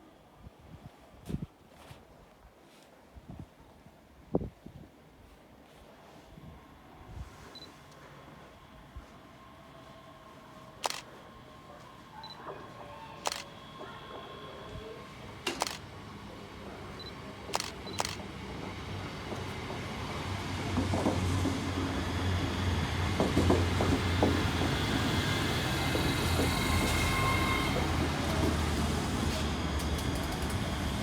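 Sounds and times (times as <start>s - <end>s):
train rumble and wheel clatter: 6.3s - 31.0s.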